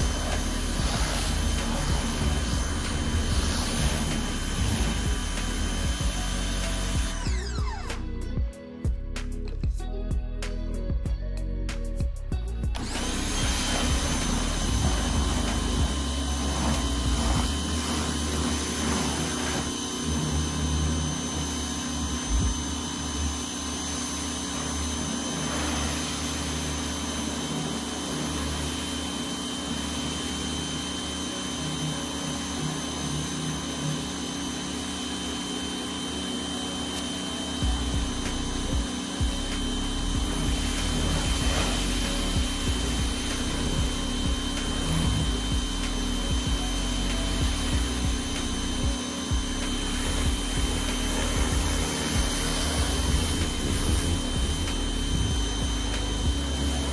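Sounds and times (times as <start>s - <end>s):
hiss of spray: 0.0s - 7.1s, 12.8s - 20.6s, 37.0s - 56.9s
pressure washer whine: 0.0s - 11.0s, 11.9s - 56.9s.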